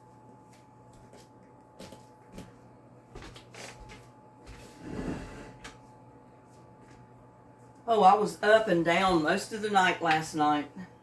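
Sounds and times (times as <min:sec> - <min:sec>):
rustling shuffle: 0:00.4 - 0:05.4.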